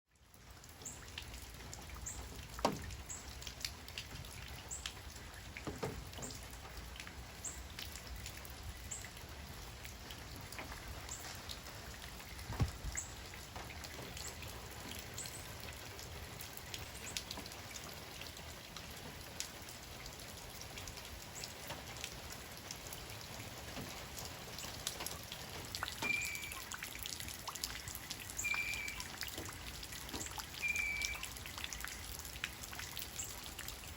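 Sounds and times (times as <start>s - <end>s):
rain drops ticking: 0.1s - 33.9s.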